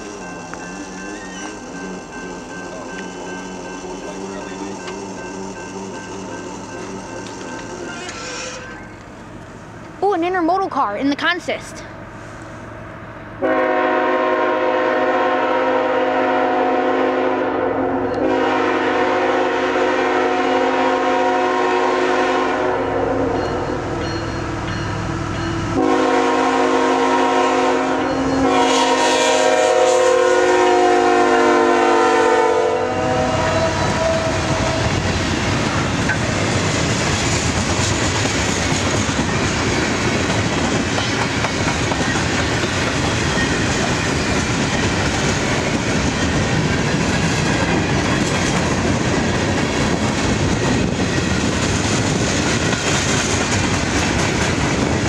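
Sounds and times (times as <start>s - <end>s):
locomotive air horn blasts: 13.4s - 23.4s, 25.8s - 35.0s
freight cars rumbling on jointed track: 33.7s - 55.0s.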